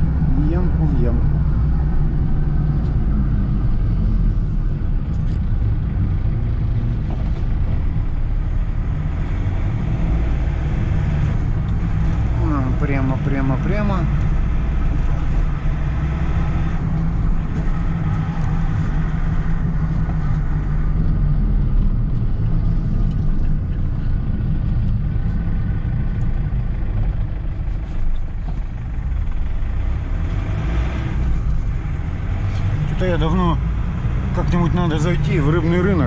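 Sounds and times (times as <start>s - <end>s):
vehicle engine and road noise: 0.0s - 36.0s.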